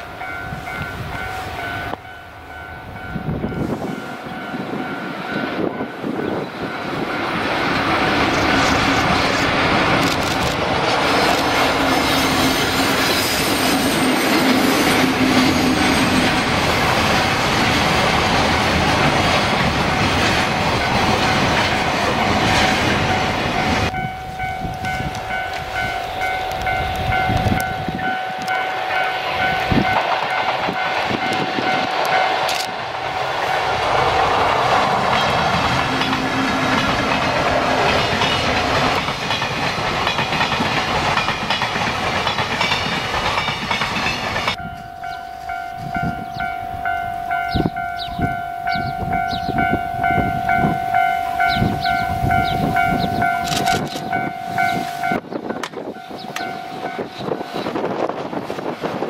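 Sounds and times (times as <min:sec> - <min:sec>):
freight train rumbling past: 0:00.0 - 0:59.0
wheels clacking over rail joints: 0:04.8 - 0:45.2.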